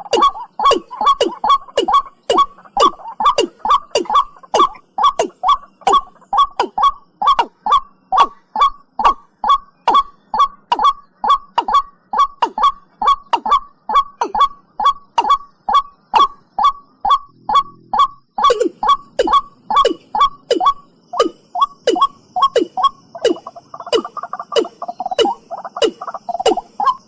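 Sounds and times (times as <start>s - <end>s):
bird calling short falling notes: 0.0s - 27.0s.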